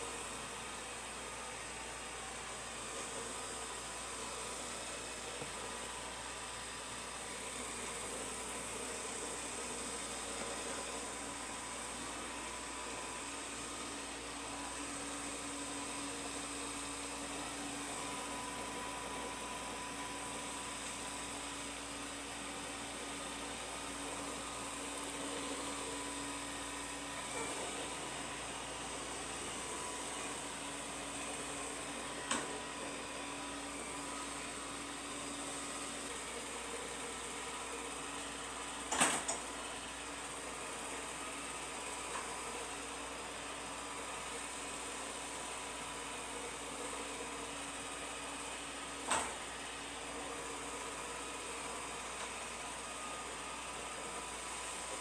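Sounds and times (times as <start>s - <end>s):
robot vacuum cleaner whirring: 0.0s - 55.0s.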